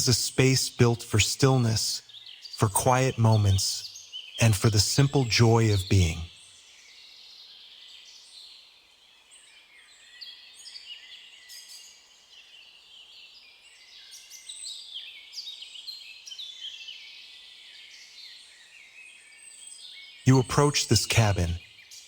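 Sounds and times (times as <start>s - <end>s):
songbirds chirping and singing: 0.0s - 6.6s.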